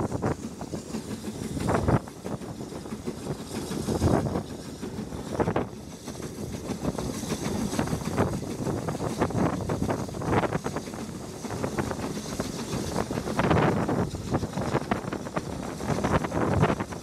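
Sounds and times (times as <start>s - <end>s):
train wheels rumbling on rails: 0.0s - 17.0s
wind on microphone: 0.0s - 17.0s.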